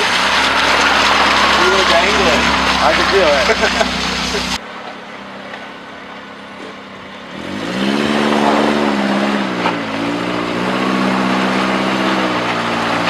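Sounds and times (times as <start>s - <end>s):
car engine revving under load: 0.0s - 13.0s.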